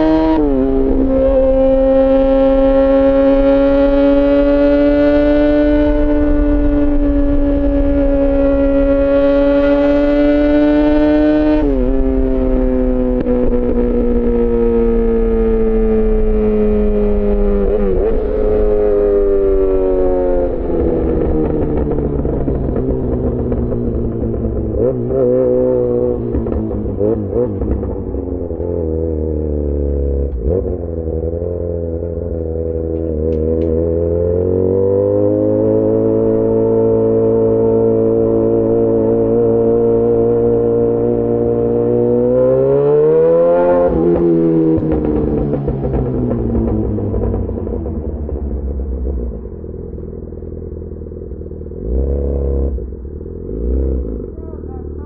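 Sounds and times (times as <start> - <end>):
motorcycle engine slowing down: 0.0 - 36.6, 43.6 - 55.0.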